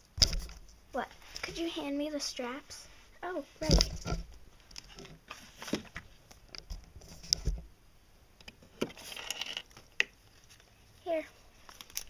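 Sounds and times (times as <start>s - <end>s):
toys knocking and rustling: 0.2s - 1.7s, 3.6s - 7.7s, 8.4s - 10.6s.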